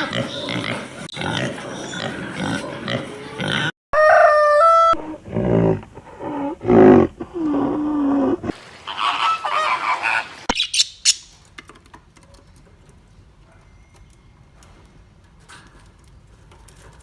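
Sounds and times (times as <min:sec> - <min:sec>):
animal grunting: 0:05.0 - 0:09.2
animal squawking: 0:08.4 - 0:11.2.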